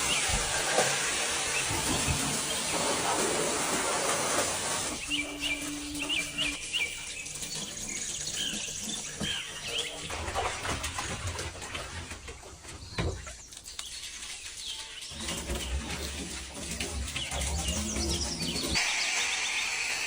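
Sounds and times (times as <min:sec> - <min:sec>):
water spray hissing: 0:00.0 - 0:07.2
birds chirping: 0:00.0 - 0:19.8.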